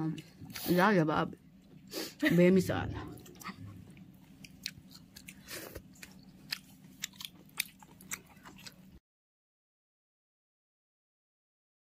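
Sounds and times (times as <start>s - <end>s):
person chewing food: 3.0s - 9.0s.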